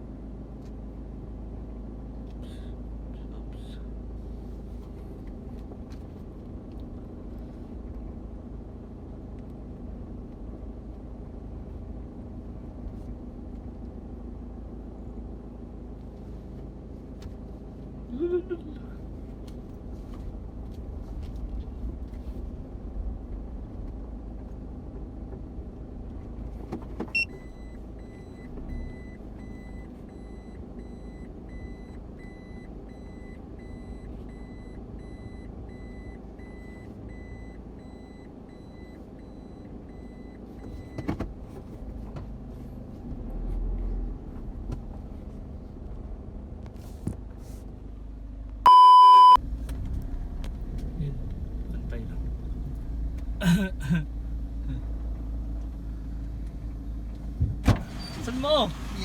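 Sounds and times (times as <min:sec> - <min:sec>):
car engine running: 0:00.0 - 0:59.0
short loud beep: 0:48.7 - 0:49.4.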